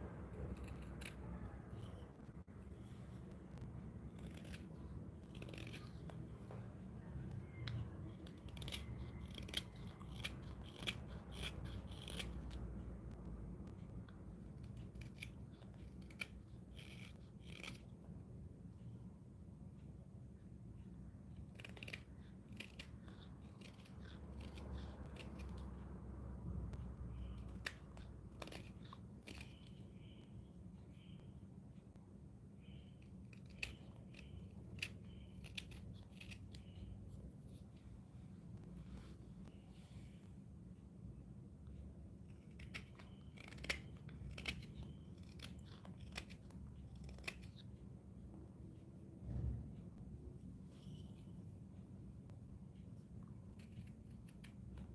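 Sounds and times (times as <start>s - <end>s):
faint low hum: 0.0s - 54.9s
carving tool scratching wood: 0.4s - 2.1s, 3.6s - 6.2s, 8.2s - 12.7s, 14.6s - 17.9s, 21.5s - 25.7s, 27.2s - 30.2s.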